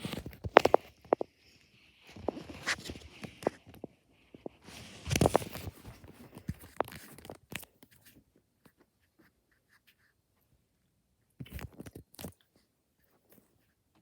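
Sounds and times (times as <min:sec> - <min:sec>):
rustling and clicking handling: 0:00.0 - 0:10.0.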